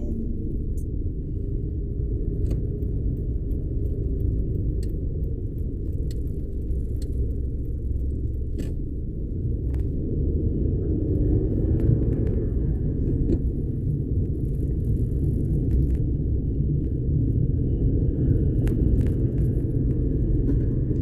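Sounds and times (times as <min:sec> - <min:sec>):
car cabin rumble: 0:00.0 - 0:17.5.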